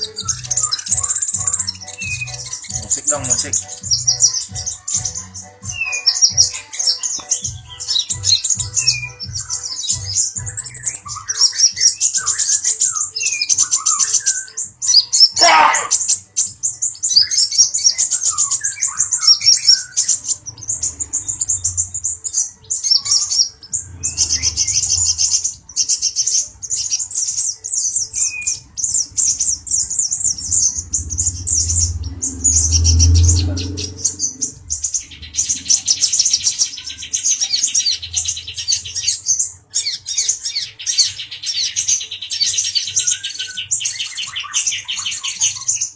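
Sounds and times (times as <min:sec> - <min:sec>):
bird trilling chatter: 0:00.0 - 0:45.9
lower bird chirps: 0:00.0 - 0:45.9.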